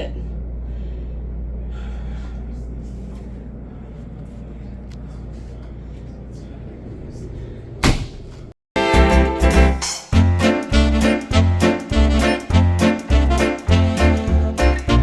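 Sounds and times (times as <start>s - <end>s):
low rumble: 6.0s - 8.6s.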